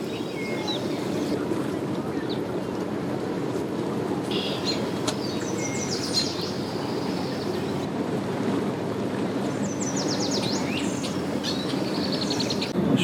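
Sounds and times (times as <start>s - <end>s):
boat engines: 0.0s - 13.0s
wind on microphone: 0.0s - 13.0s
bird chirping trills: 4.3s - 7.8s, 9.7s - 12.7s.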